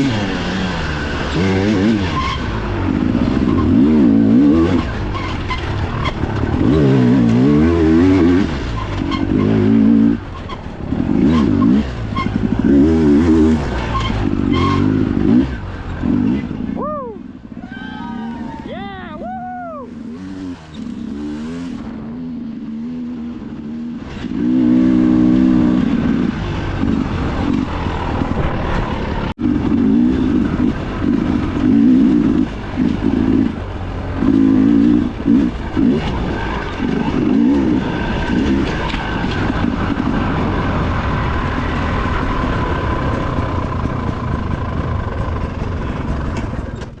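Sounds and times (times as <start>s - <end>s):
dirt bike engine revving: 0.0s - 19.2s, 19.8s - 46.8s.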